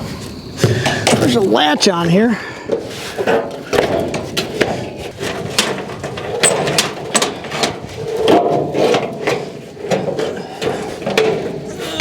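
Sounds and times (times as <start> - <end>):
metal latches clanking: 2.7 - 12.0.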